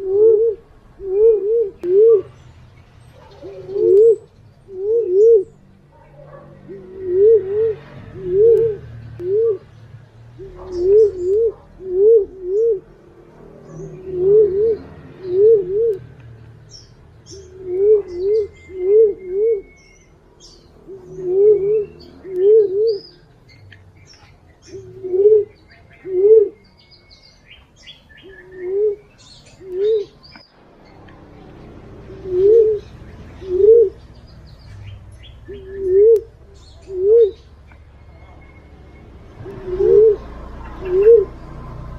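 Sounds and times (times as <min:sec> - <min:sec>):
low wavering pigeon coos: 0:00.0 - 0:02.4, 0:03.1 - 0:09.7, 0:10.4 - 0:23.3, 0:24.0 - 0:26.8, 0:28.2 - 0:30.4, 0:31.4 - 0:34.3, 0:35.4 - 0:41.9
small birds chirping: 0:00.0 - 0:41.9.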